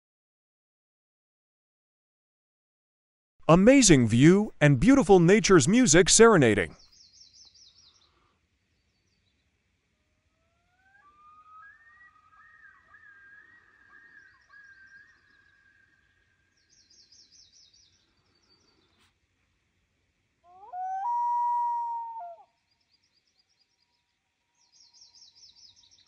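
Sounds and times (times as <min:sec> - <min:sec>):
loon wailing: 0:20.5 - 0:22.4.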